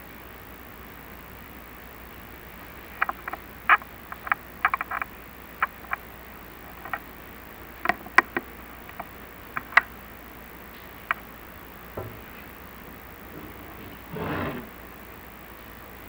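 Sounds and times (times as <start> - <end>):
camera cable knocking on flue tiles: 3.0 - 6.0, 6.7 - 7.0, 7.8 - 9.9.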